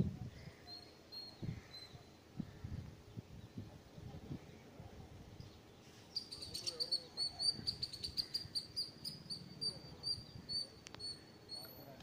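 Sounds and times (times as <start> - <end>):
small bird chirping: 0.4 - 2.8, 5.4 - 12.0.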